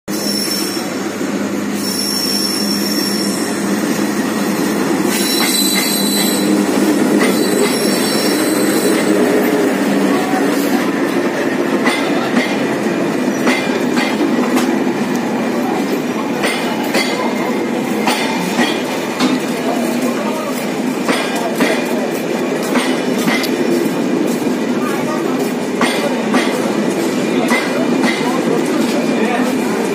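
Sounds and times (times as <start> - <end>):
high-pitched wheel squeal: 0.1 - 1.0, 1.7 - 3.7, 5.1 - 9.2
train rumbling into station: 0.1 - 29.9
wheel clacks over rail joints: 11.7 - 17.4.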